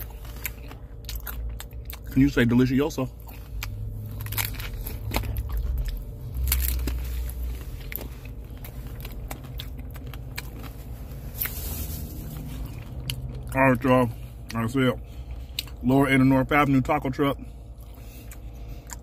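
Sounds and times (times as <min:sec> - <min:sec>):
crunching crisp fried shell: 0:00.0 - 0:13.6
low hum: 0:00.0 - 0:19.0.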